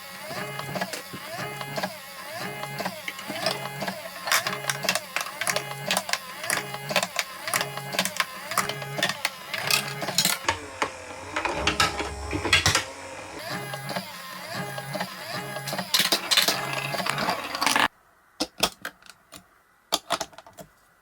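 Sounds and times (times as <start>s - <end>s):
marbles rolling rumble: 16.3s - 17.9s.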